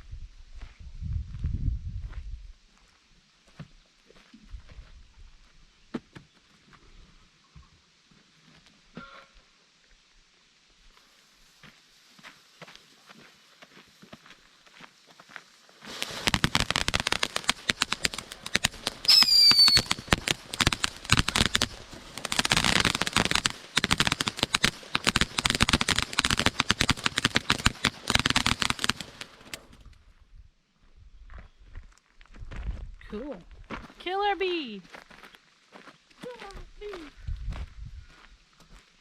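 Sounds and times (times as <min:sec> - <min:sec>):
firework whistle: 0:15.8 - 0:29.3
firework crackling pops: 0:15.8 - 0:30.0.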